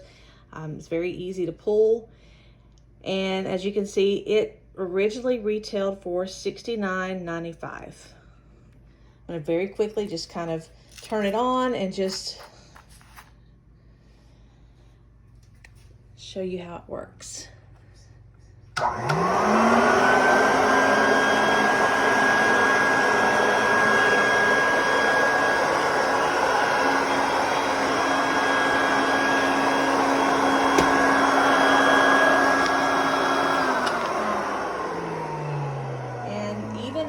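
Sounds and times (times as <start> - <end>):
vacuum cleaner switch click: 18.8 - 19.8, 30.1 - 34.9
vacuum cleaner motor whining: 18.8 - 37.0.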